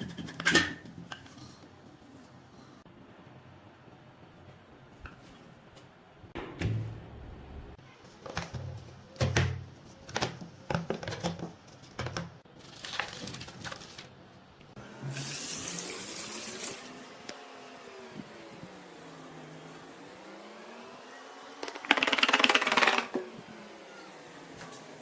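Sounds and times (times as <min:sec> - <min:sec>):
water running from tap: 0:15.1 - 0:17.0.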